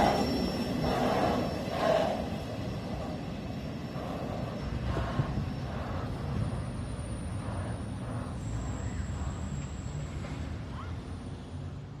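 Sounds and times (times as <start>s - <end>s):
freight train rumble: 0.0s - 12.0s.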